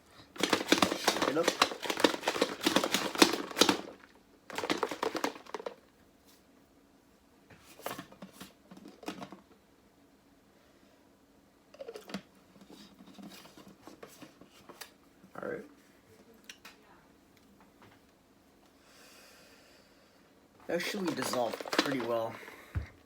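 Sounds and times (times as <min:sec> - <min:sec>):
shaker bottle rattling and sloshing: 0:00.4 - 0:05.8, 0:20.7 - 0:22.5.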